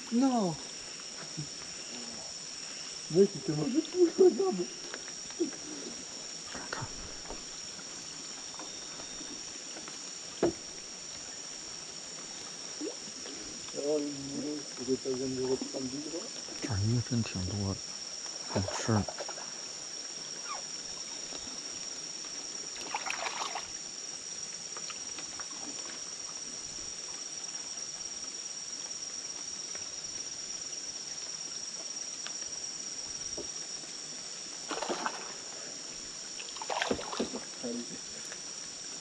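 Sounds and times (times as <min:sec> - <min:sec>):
insect drone: 0:00.0 - 0:39.0
water lapping around boat: 0:22.8 - 0:23.8, 0:34.7 - 0:37.8.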